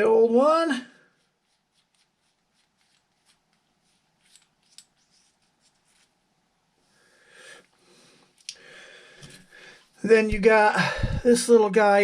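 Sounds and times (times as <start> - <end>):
faint clicks and light scraping: 2.8 - 6.1.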